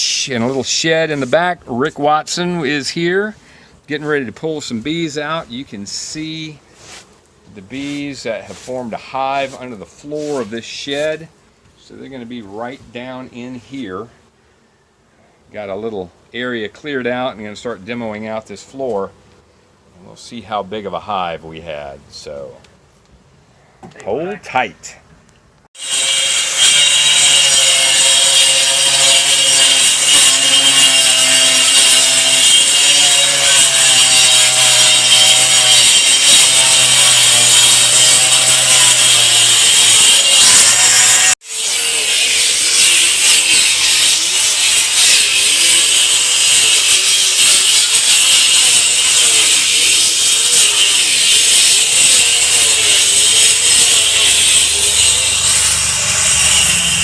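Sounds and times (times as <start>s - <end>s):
power saw cutting wood: 4.8s - 11.3s, 25.8s - 57.0s.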